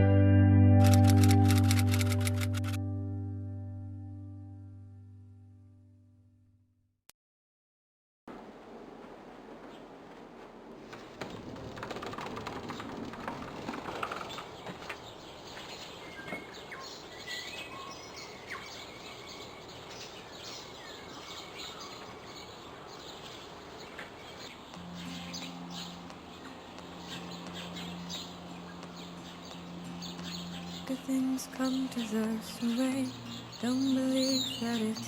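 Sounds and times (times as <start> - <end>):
steady background hiss: 8.3 - 12.0, 13.0 - 35.0
small birds chirping: 12.2 - 35.0.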